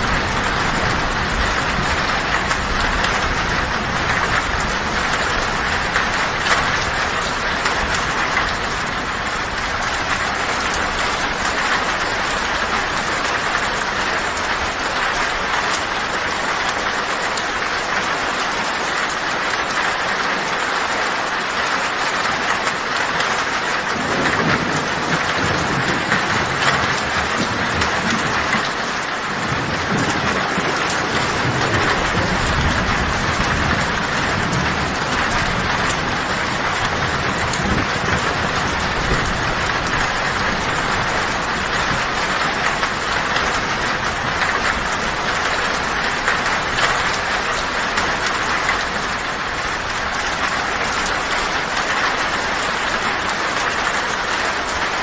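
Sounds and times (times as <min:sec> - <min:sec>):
thunder rumbling: 0:00.0 - 0:16.6, 0:23.8 - 0:51.8
heavy rain on a tin roof: 0:00.0 - 0:55.0.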